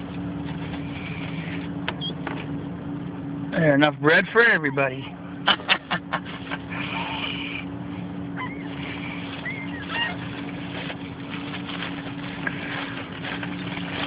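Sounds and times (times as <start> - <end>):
car engine idling: 0.0 - 14.0
gull calls: 8.4 - 10.4.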